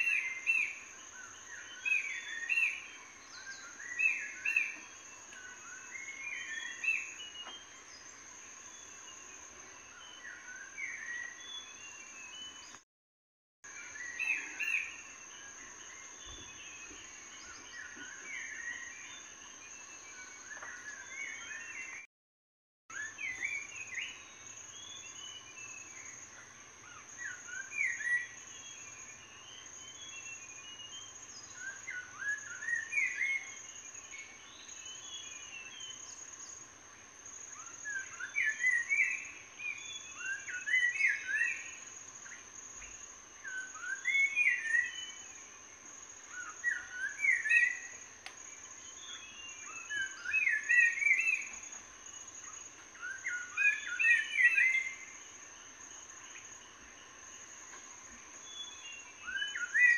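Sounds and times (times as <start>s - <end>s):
songbird singing rising notes: 0.0s - 12.8s, 13.7s - 22.1s, 37.4s - 59.9s.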